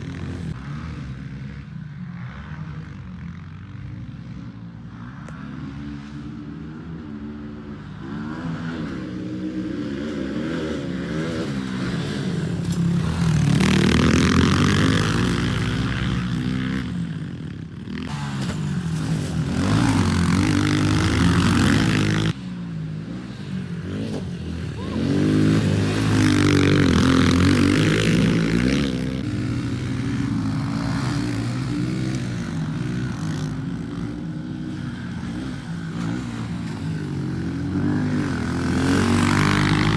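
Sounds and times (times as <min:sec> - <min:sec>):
motorbike engine revving: 0:17.8 - 0:22.4, 0:23.1 - 0:39.9.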